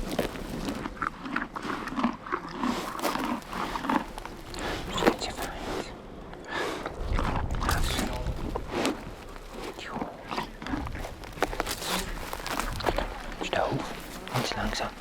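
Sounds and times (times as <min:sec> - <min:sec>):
horse chewing grass: 0:00.0 - 0:15.0.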